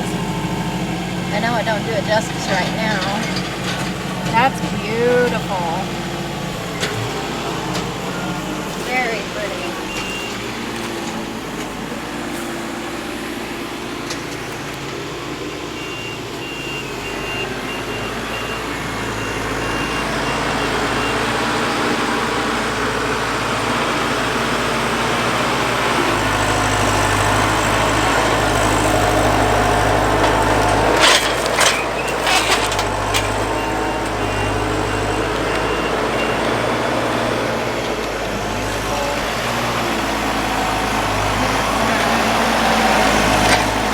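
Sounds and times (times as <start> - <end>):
reversing alarm beeping: 0.0 - 12.2, 15.7 - 22.3, 26.3 - 42.2
heavy diesel engine running: 0.0 - 43.9.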